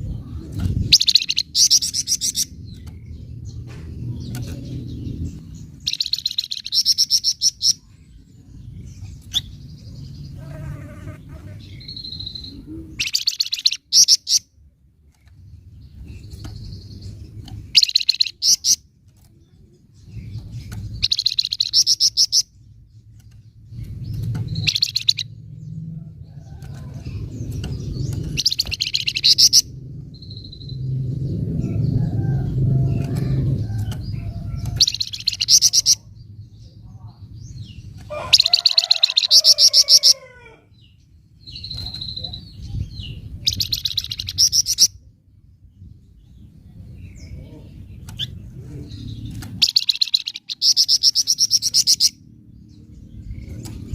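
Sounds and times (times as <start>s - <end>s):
low background rumble: 0.0s - 13.2s, 13.8s - 53.9s
songbird rattling call: 49.2s - 52.2s.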